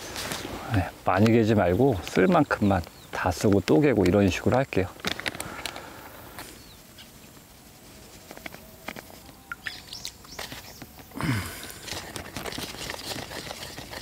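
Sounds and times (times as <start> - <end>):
hand mixing bait: 8.4 - 14.0
bird chirps: 9.2 - 10.9.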